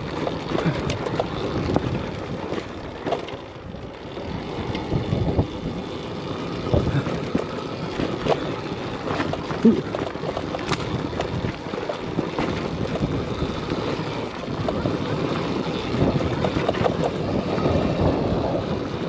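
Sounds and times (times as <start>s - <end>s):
bike knocks and rattles: 0.0s - 19.0s
tyres on dirt and rock: 0.0s - 19.0s
wind on microphone: 14.4s - 19.0s.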